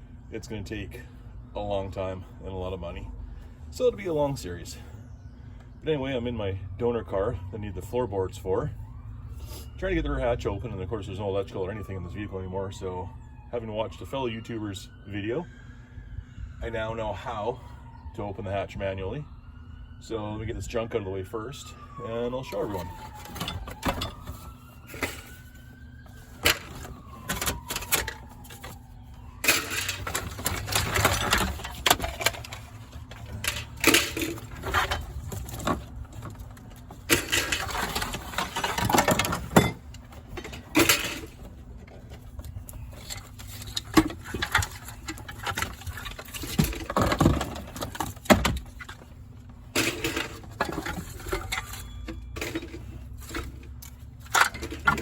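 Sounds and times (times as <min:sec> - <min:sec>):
rustling and scraping: 0:22.5 - 0:55.0
junk knocking and clattering: 0:29.4 - 0:42.3, 0:43.0 - 0:49.0.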